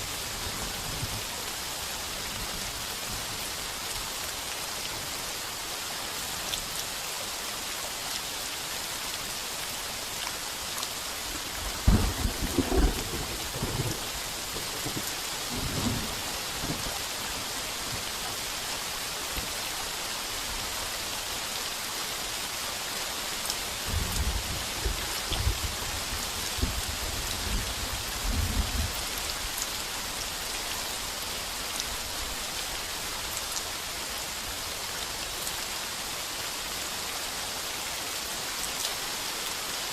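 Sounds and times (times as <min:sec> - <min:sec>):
heavy rain on a tin roof: 0:00.0 - 0:39.9
thunder rumbling: 0:11.4 - 0:17.0.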